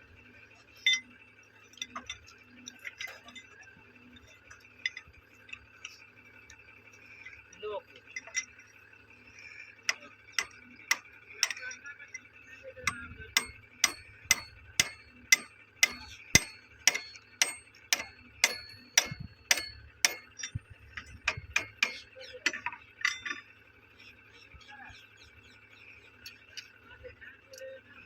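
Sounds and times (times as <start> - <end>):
tool tapping on metal: 9.9 - 12.2, 12.8 - 23.5.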